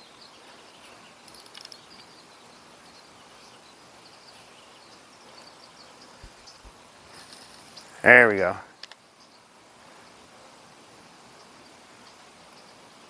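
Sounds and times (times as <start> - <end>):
low steady hiss: 0.0 - 13.0
small birds chirping: 0.0 - 13.0
faint clicks: 1.2 - 2.1, 8.8 - 9.0.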